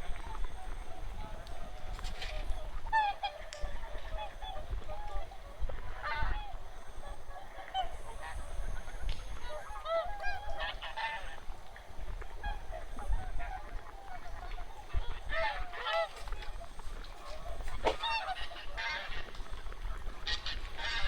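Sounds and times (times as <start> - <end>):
geese calling: 0.0 - 21.0.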